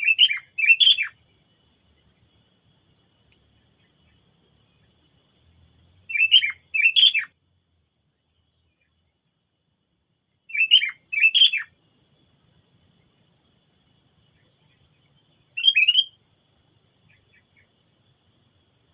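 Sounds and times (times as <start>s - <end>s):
bird calling: 0.0s - 1.2s, 6.1s - 7.3s, 10.5s - 11.7s, 15.6s - 16.2s.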